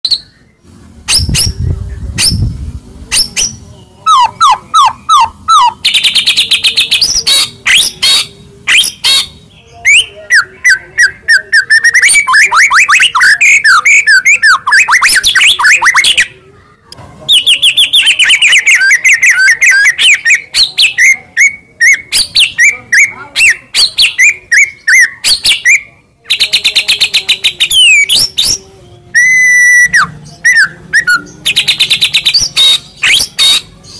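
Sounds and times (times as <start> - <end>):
songbird singing varied song: 17.3 - 33.9.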